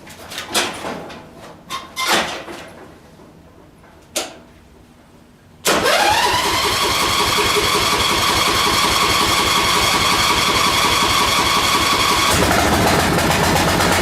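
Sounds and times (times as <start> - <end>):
tractor engine starting and running: 5.6 - 14.0.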